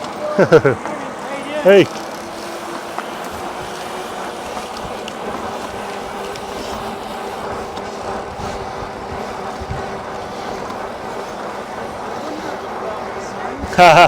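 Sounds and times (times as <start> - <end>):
wind rushing on microphone: 3.3 - 10.6.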